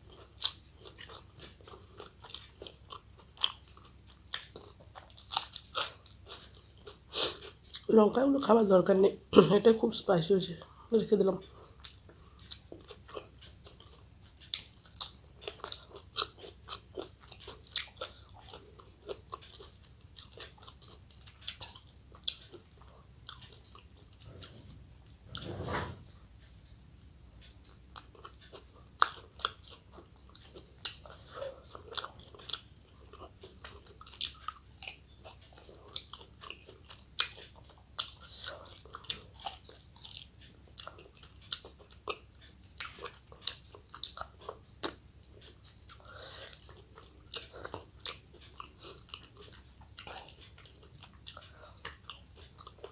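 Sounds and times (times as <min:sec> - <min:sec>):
person chewing crunchy food: 0:00.0 - 0:07.9, 0:11.5 - 0:24.8, 0:27.4 - 0:52.9
brief rush of noise: 0:24.4 - 0:26.0.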